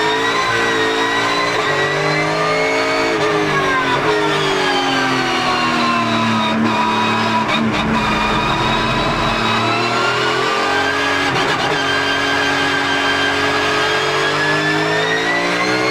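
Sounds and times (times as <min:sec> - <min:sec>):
race car engine revving: 0:07.5 - 0:10.4
gearbox whine: 0:07.6 - 0:10.2.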